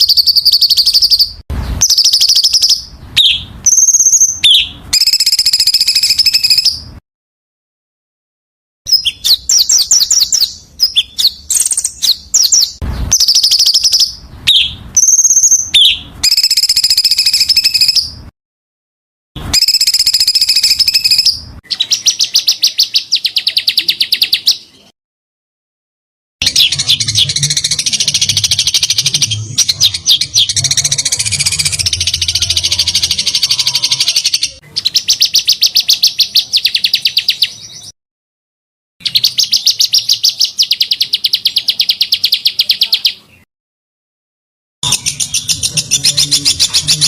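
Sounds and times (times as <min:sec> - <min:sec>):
songbird trills and chatter: 0:19.6 - 0:24.9, 0:26.4 - 0:37.9, 0:39.0 - 0:43.4, 0:44.8 - 0:47.0.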